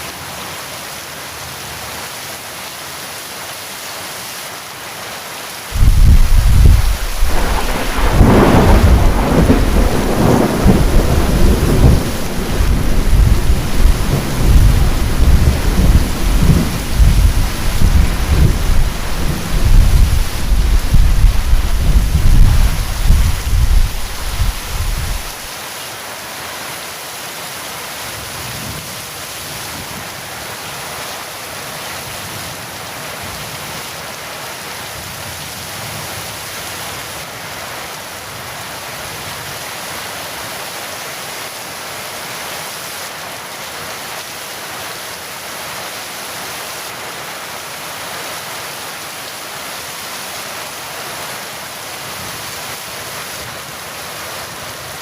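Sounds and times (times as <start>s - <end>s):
heavy rain falling: 0.0s - 55.0s
thunder rumble: 5.8s - 25.5s.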